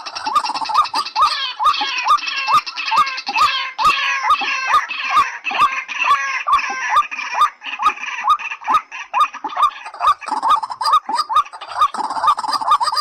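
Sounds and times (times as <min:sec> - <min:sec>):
waterhen calling: 0:00.0 - 0:13.0.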